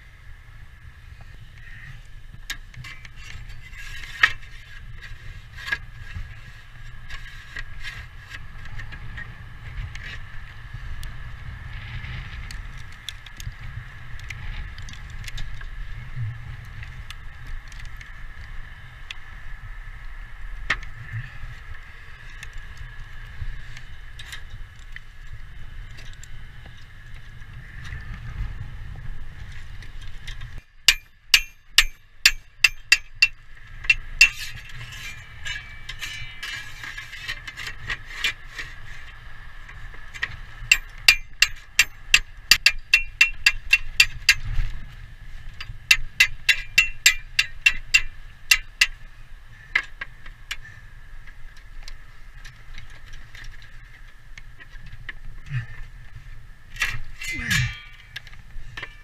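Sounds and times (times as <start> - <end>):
hammer ringing on metal: 30.9 - 34.4, 46.2 - 48.6.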